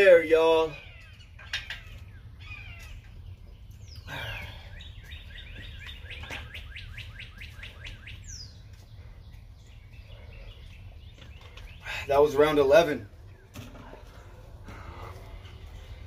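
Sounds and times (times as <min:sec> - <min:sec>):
songbird whistling and chirping: 0:00.5 - 0:12.2.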